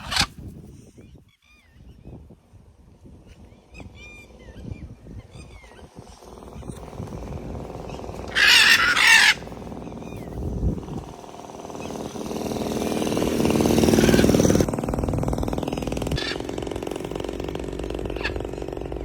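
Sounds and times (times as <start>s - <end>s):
vehicle engine humming: 5.3s - 19.0s
parrot squawking: 7.9s - 10.3s, 13.9s - 14.5s, 16.2s - 16.6s, 18.0s - 18.6s.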